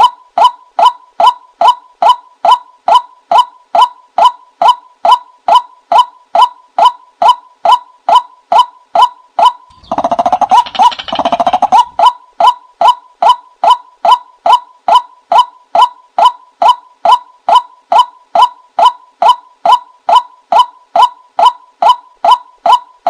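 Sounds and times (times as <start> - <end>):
bird rattling gurgling phrase: 9.7 - 12.0
bird call notes: 9.7 - 12.1.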